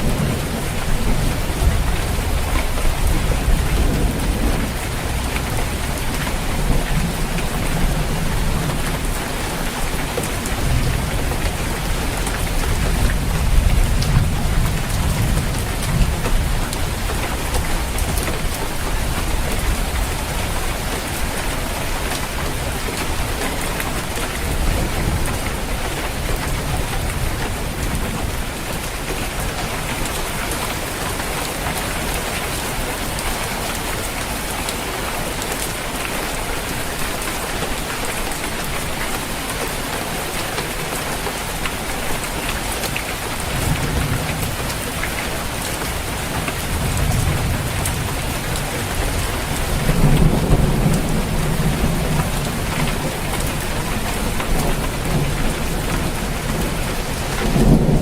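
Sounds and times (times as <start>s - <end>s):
heavy rain drumming on a roof: 0.0s - 58.0s
thunder rumbling: 43.4s - 58.0s.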